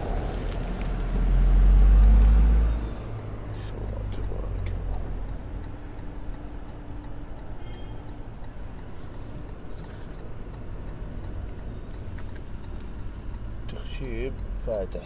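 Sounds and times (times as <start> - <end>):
faint ticks: 3.6 - 15.0.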